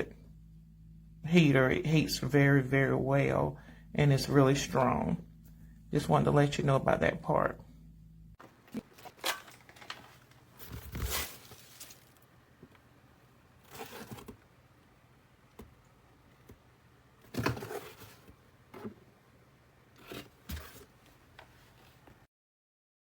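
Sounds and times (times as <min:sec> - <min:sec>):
faint low hum: 0:00.0 - 0:22.3
rustling and scraping handling noise: 0:08.4 - 0:12.8, 0:13.6 - 0:14.5, 0:17.2 - 0:19.1, 0:19.9 - 0:22.3.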